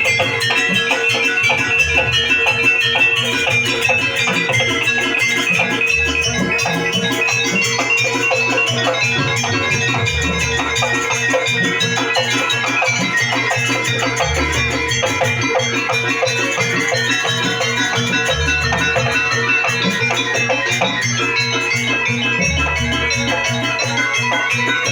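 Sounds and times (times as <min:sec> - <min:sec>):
steady held tone: 0:00.0 - 0:19.7
high melody: 0:00.0 - 0:20.3
drum and metal percussion: 0:00.0 - 0:24.9.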